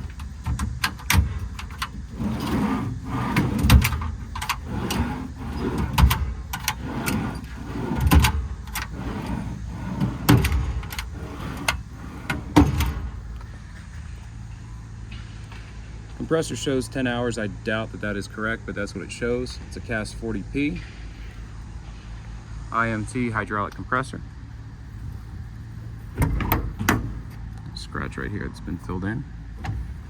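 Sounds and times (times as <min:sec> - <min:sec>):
metal drawers clicking and thumping: 0:00.0 - 0:13.3, 0:26.1 - 0:27.4.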